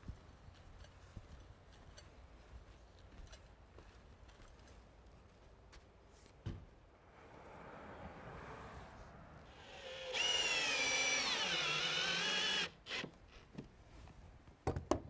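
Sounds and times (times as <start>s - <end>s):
power drill whining: 9.5s - 13.1s.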